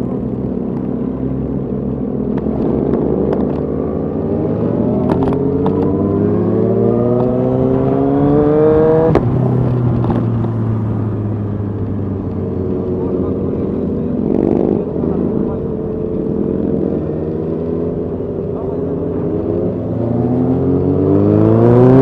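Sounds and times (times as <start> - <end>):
wind noise: 1.4 - 13.0
motorcycle engine revving up: 2.4 - 11.5, 12.9 - 22.0.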